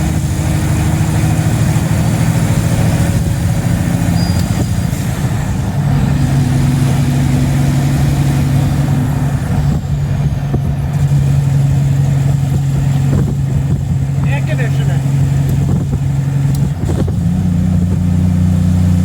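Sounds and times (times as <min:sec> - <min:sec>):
diesel truck engine droning: 0:00.0 - 0:19.0.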